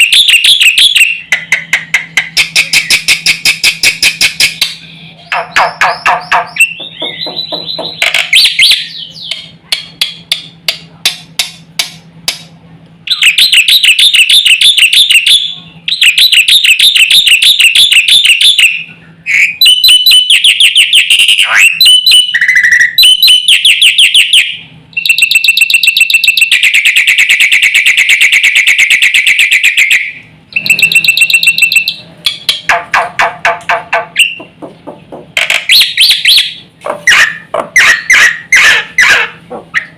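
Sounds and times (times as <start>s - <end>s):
falling whistle: 0.0s - 1.2s, 13.1s - 32.0s
starling singing: 0.0s - 10.2s, 13.1s - 26.3s, 29.8s - 34.6s, 35.6s - 39.9s.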